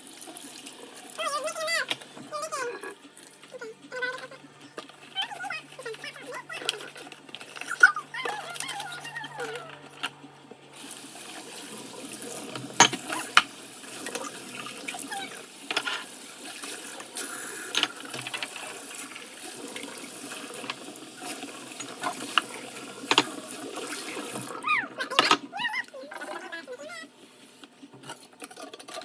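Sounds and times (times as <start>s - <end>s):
tap water running: 0.0s - 29.0s
dishes clinking: 12.6s - 13.5s.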